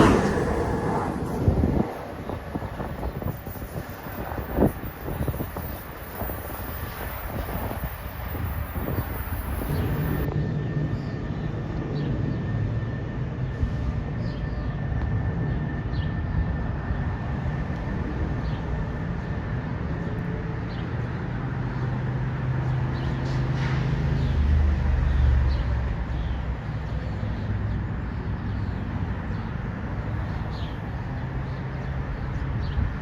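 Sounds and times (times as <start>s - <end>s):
train rumbling: 0.0s - 10.3s.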